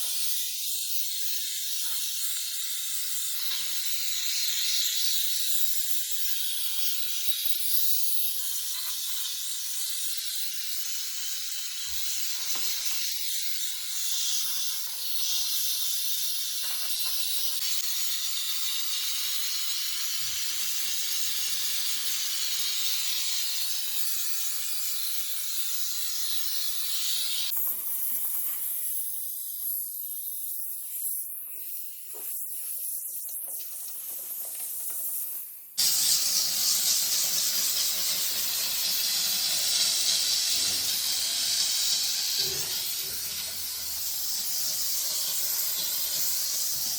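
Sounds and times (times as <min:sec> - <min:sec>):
pressure washer jet hissing: 0:35.8 - 0:46.9.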